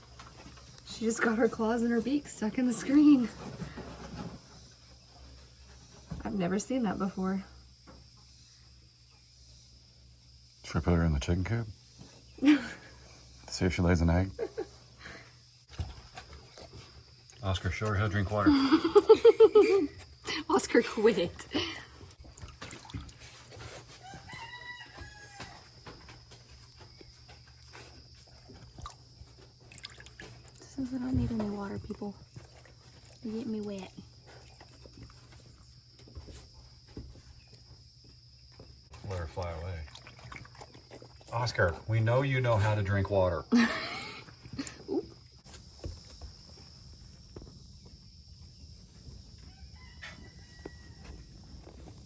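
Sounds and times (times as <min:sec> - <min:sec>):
outdoor background noise: 0:00.0 - 0:52.0
rooster crowing: 0:24.0 - 0:26.0, 0:49.4 - 0:51.4.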